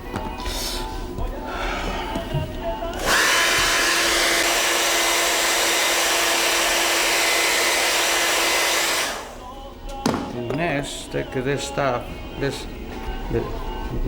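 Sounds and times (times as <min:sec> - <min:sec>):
hair dryer blowing: 0:03.0 - 0:09.4.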